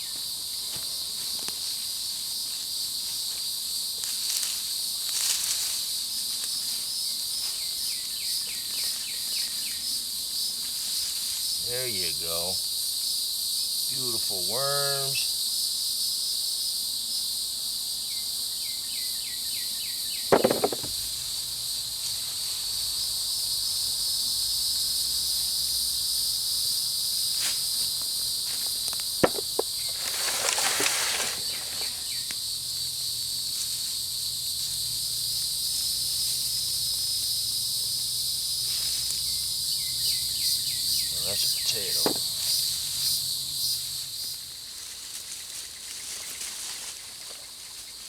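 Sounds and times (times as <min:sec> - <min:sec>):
insects shrilling: 0:00.0 - 0:48.0
digging in mulch: 0:28.7 - 0:32.1.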